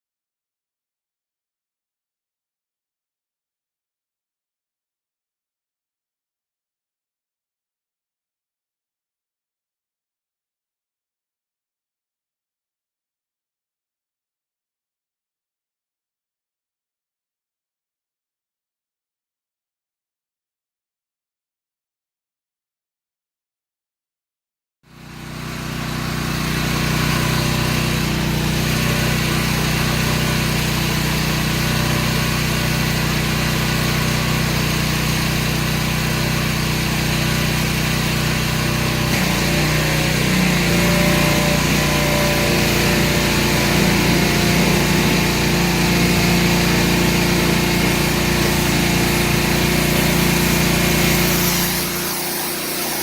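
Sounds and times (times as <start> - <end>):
motor humming: 38.8 - 53.0.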